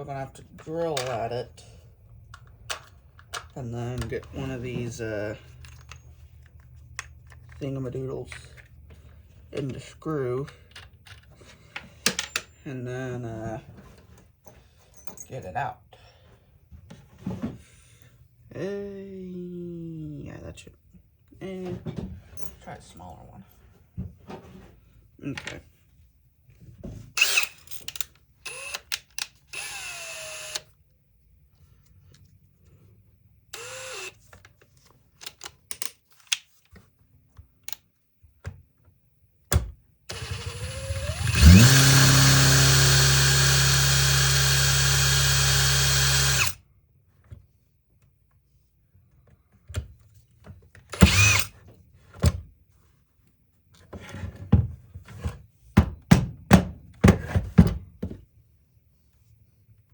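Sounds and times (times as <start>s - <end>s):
power drill drilling: 27.2s - 27.5s, 28.5s - 28.8s, 29.5s - 30.6s, 33.6s - 34.2s, 40.1s - 46.6s, 51.0s - 51.5s
short clicks and whirs: 27.2s - 30.7s, 40.1s - 46.6s, 50.9s - 51.6s.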